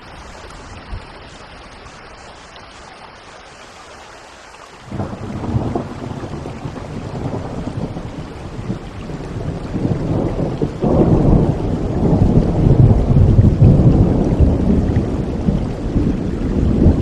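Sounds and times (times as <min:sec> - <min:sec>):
steady rain: 0:00.0 - 0:17.0
rolling thunder: 0:04.9 - 0:17.0.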